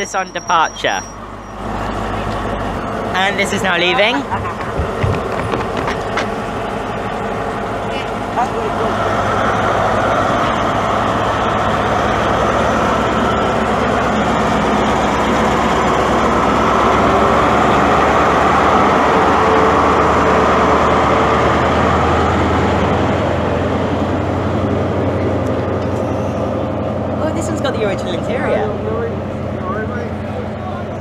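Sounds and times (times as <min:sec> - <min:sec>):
diesel train engine under load: 0:00.0 - 0:31.0.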